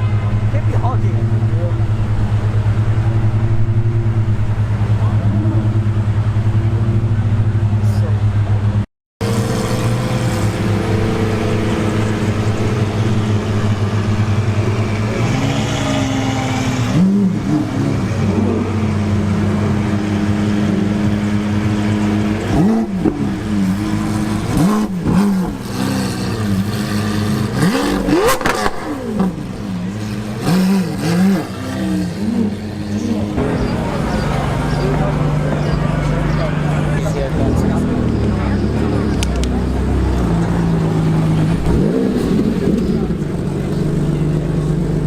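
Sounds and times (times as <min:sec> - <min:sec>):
sports car engine idling: 0:28.4 - 0:45.0.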